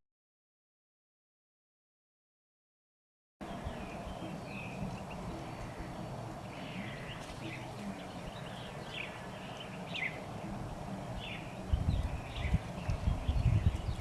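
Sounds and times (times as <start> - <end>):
birds chirping: 3.4 - 14.0
steady background hiss: 3.4 - 14.0.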